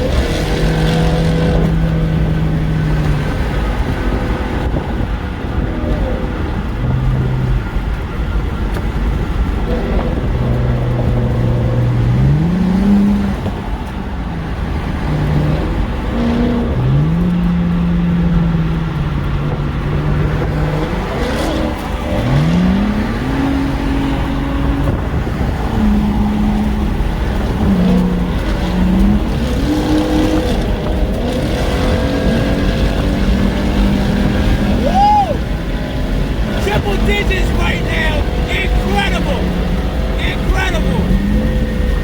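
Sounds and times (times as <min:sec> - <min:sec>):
car exhaust roaring: 0:00.0 - 0:42.0
road and wind noise: 0:00.0 - 0:42.0.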